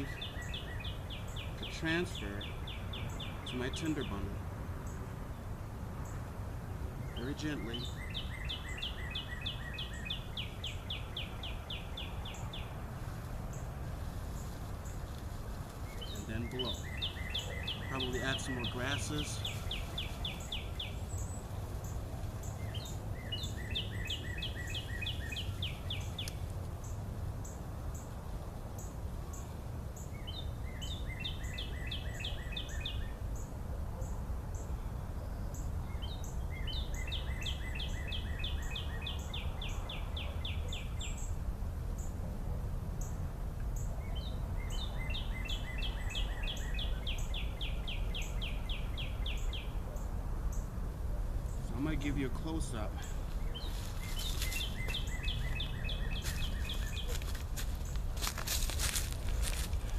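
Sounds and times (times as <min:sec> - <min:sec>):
songbird trilling: 0:00.0 - 0:04.4, 0:07.0 - 0:12.7, 0:15.8 - 0:27.6, 0:43.8 - 0:50.7, 0:51.5 - 0:57.3.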